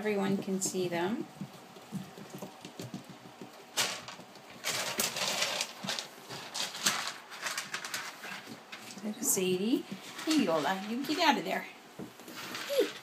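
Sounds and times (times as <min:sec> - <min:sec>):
puppies rustling and scuffling: 0:00.0 - 0:13.0
small taps and clicks: 0:00.4 - 0:04.4
faint puppy squeaks: 0:12.6 - 0:13.0.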